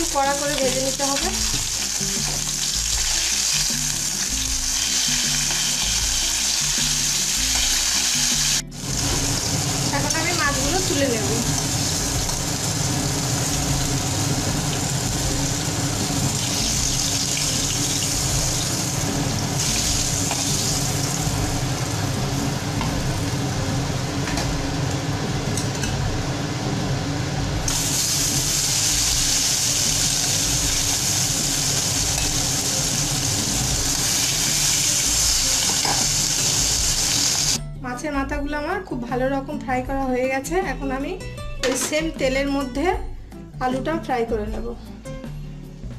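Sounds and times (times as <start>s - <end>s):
fish frying in oil: 0.1s - 22.2s, 27.7s - 37.6s
oil bubbling: 11.5s - 23.3s.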